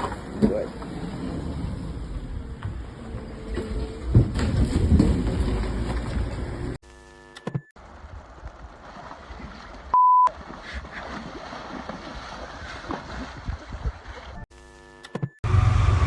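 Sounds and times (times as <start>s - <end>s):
censor bleep: 6.8s - 7.7s, 14.5s - 15.4s.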